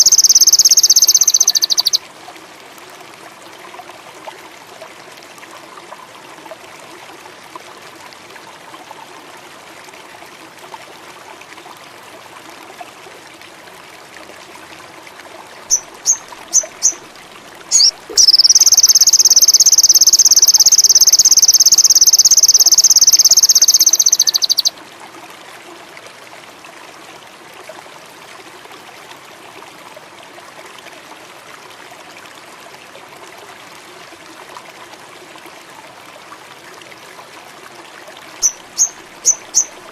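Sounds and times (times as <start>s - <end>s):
songbird chirping: 0.0s - 2.0s, 15.7s - 17.0s, 17.7s - 24.7s, 38.4s - 39.8s
stream running water: 0.0s - 39.9s.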